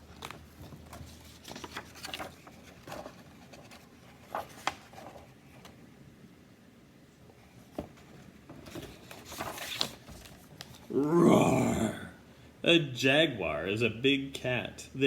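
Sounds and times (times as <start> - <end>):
paper pages rustling: 0.0 - 5.7, 8.6 - 10.9.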